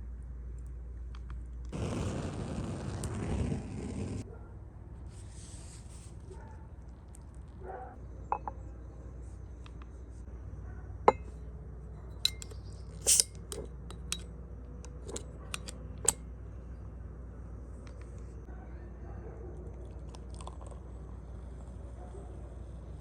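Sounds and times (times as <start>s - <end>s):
utensils and dishes clinking: 12.2s - 14.2s.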